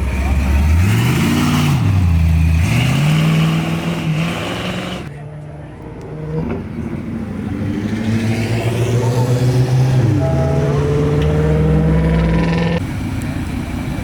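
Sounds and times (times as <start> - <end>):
car engine running hard: 6.8 - 14.0.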